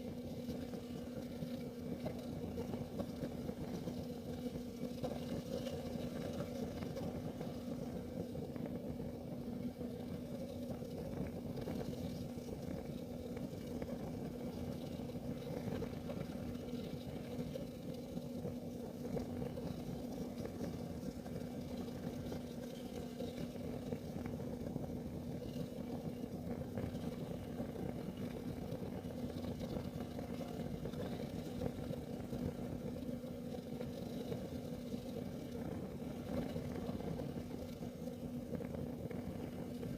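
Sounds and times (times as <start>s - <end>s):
constant low hum: 0.0s - 39.9s
heater burning with low rumble: 0.0s - 39.9s.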